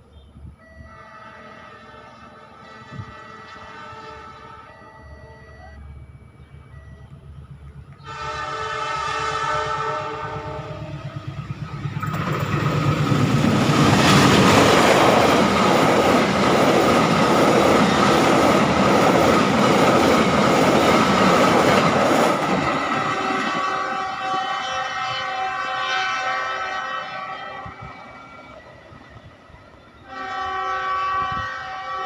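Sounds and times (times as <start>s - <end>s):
train wheels clattering over rails: 10.9s - 24.4s.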